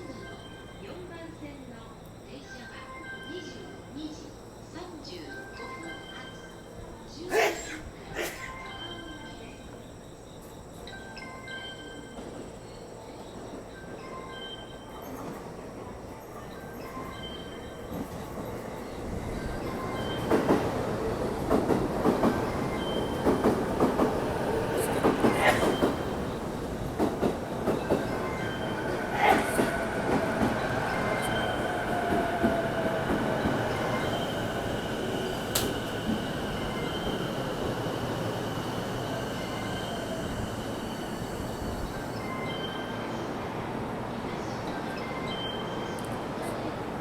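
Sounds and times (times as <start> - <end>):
electric train on rails: 0.0 - 47.0.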